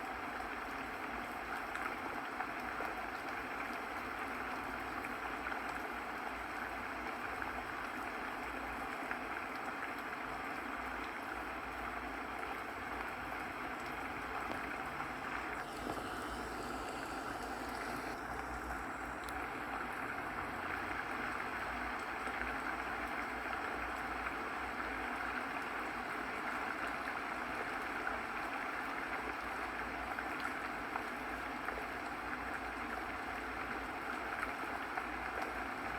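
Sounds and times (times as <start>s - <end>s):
running water flowing: 10.8s - 23.7s.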